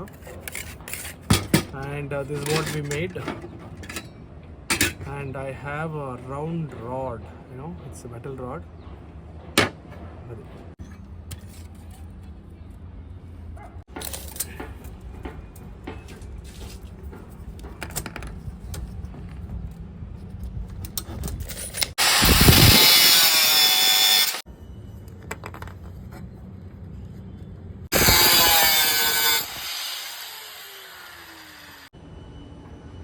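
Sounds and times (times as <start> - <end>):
motor winding down whine: 22.0 - 24.4, 27.9 - 31.9
power tool cutting metal rod: 22.0 - 24.4, 27.9 - 31.9.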